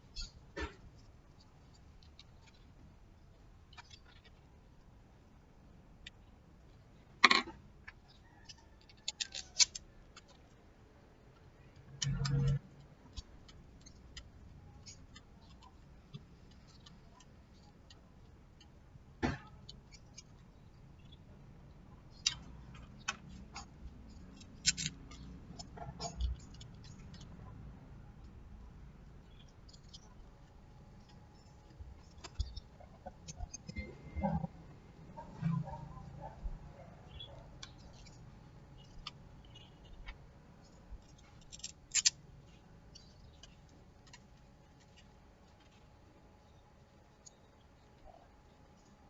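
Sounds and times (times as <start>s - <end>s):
faint low hum: 0.0s - 49.0s
small parts and tools clicking: 3.6s - 4.5s, 6.0s - 10.6s, 11.3s - 18.8s, 22.0s - 28.4s, 29.0s - 34.4s, 37.1s - 45.9s.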